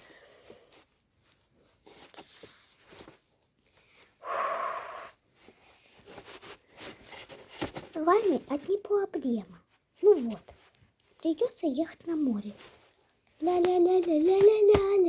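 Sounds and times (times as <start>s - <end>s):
rustling: 0.0s - 15.0s
person exhaling breathily: 4.2s - 5.2s.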